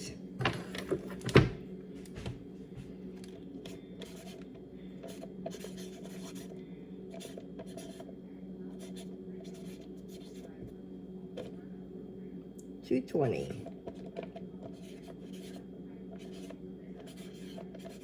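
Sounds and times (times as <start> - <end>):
scratchy writing strokes: 3.7 - 6.5, 7.1 - 8.1, 8.7 - 10.6, 13.9 - 18.0.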